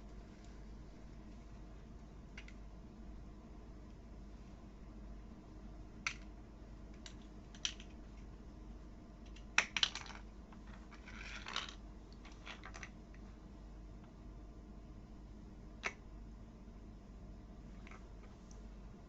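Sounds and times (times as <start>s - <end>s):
pieces rattling when rummaged: 9.6s - 13.0s.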